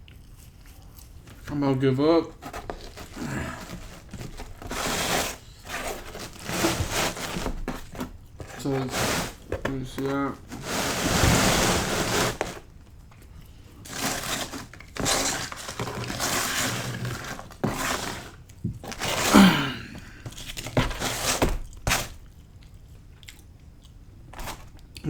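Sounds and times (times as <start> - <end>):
biting and chewing pizza: 0.0 - 6.8, 21.6 - 25.0
crunches crinkles and knocks: 0.5 - 13.2, 13.8 - 22.3.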